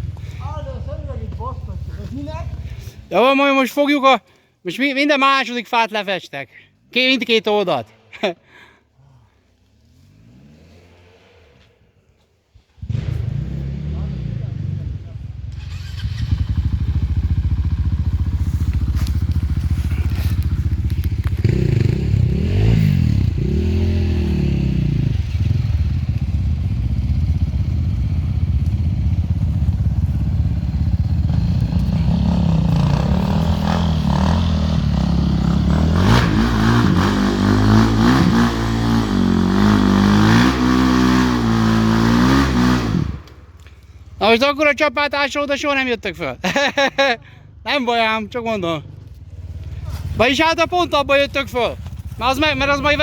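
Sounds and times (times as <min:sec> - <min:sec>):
motorcycle engine revving: 0:09.8 - 0:11.9, 0:12.8 - 0:43.8.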